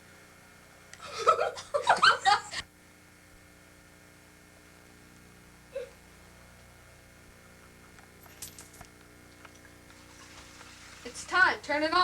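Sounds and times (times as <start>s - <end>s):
faint electrical hum: 0.0s - 12.0s
person laughing: 1.0s - 2.6s, 5.7s - 6.0s.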